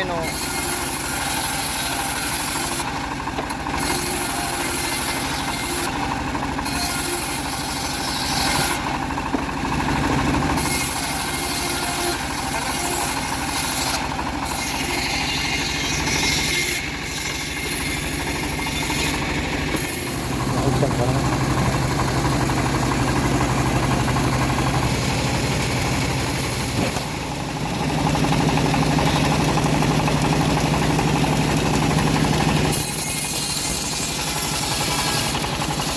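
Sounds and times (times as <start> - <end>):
bandsaw sawing wood: 0.0 - 35.9.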